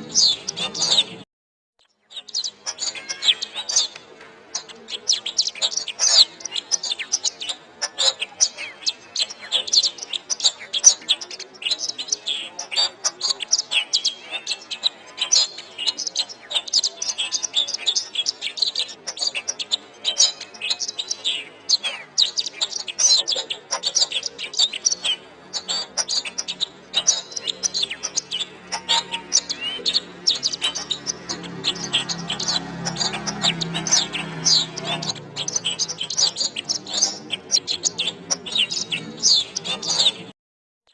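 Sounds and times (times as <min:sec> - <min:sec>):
canary singing: 0:00.0 - 0:01.2, 0:01.8 - 0:40.3.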